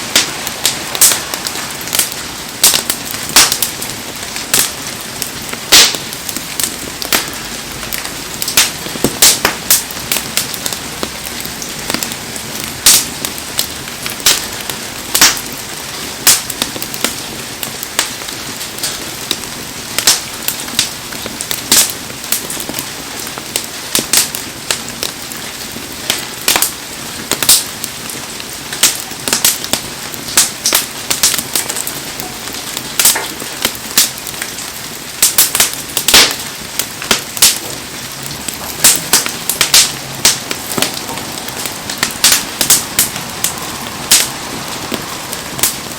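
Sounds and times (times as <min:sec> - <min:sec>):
bonfire crackling and popping: 0:00.0 - 0:45.9
heavy rain hiss: 0:00.0 - 0:45.9.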